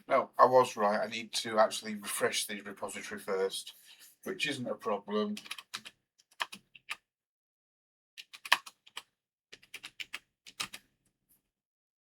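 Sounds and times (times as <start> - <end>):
keyboard typing clicks: 5.4 - 7.0, 8.2 - 10.8.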